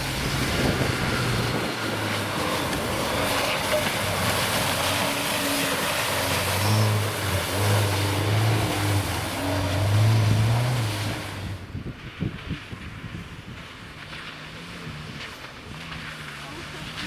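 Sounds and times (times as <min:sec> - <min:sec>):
car engine revving: 0:00.0 - 0:11.8
tyres splashing through water: 0:00.0 - 0:17.0.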